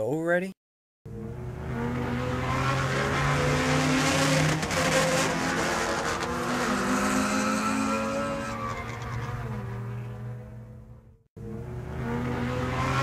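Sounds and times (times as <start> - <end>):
race car engines running: 1.1 - 13.0.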